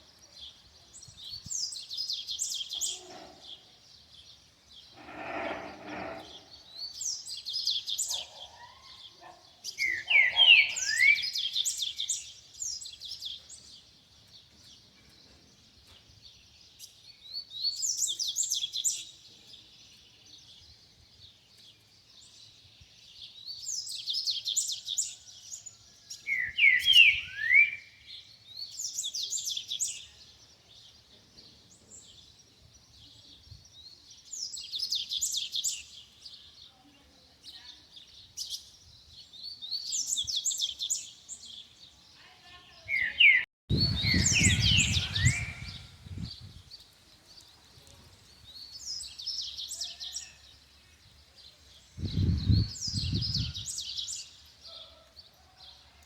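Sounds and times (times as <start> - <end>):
bird singing high phrases: 4.8 - 13.8, 26.1 - 30.9, 32.2 - 46.8, 48.4 - 55.0.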